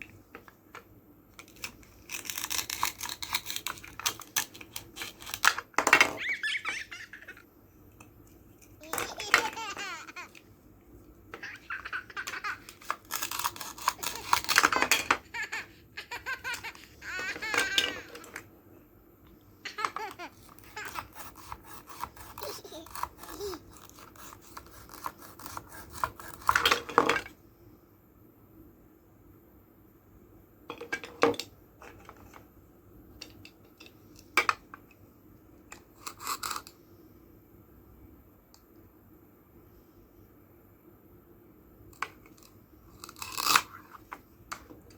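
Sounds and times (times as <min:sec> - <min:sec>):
plastic toy fruit clicking apart: 0:01.4 - 0:05.9, 0:12.1 - 0:15.5, 0:42.0 - 0:43.8.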